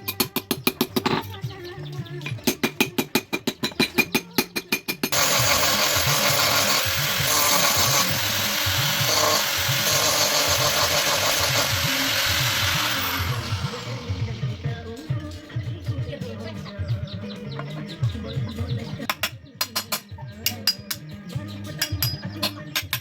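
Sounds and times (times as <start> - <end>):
electric grinder grinding steel: 5.1 - 15.0.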